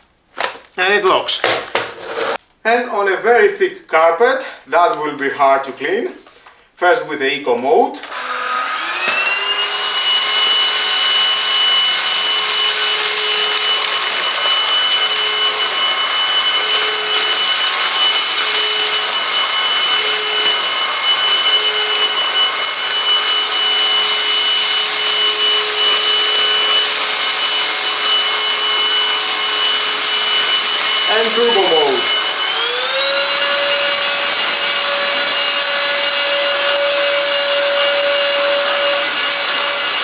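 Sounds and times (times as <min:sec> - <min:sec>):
vacuum cleaner running: 0:01.4 - 0:02.4, 0:08.0 - 0:40.0.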